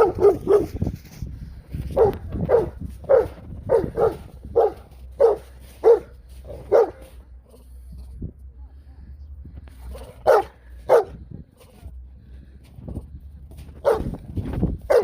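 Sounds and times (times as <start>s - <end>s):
dog barking: 0.0s - 0.8s, 1.9s - 7.2s, 9.9s - 11.2s, 13.8s - 14.2s.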